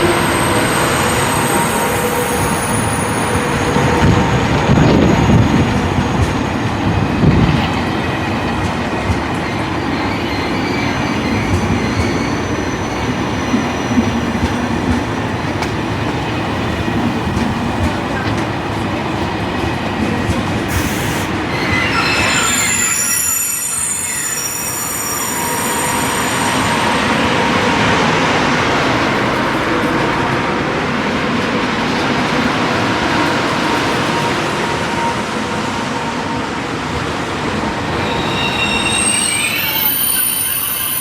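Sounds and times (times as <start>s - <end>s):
high-speed train rushing past: 0.0s - 41.0s
thin high whining tones: 37.9s - 41.0s.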